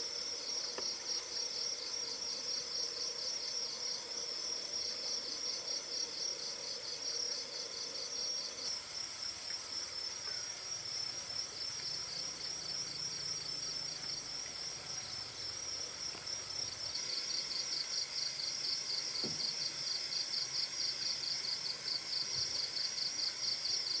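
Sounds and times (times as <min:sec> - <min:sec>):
higher pulsing insect call: 0:05.5 - 0:24.0
insects chirring: 0:05.9 - 0:24.0.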